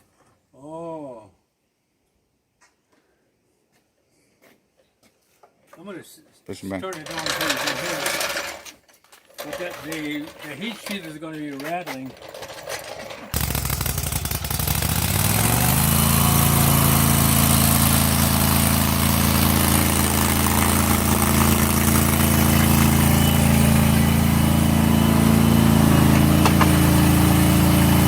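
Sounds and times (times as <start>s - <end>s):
tractor engine running: 6.9s - 28.0s.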